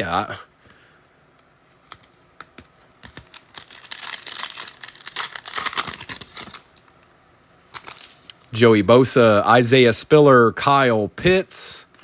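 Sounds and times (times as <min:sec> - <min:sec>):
foil pack crinkling: 0:03.0 - 0:06.8, 0:07.7 - 0:08.3.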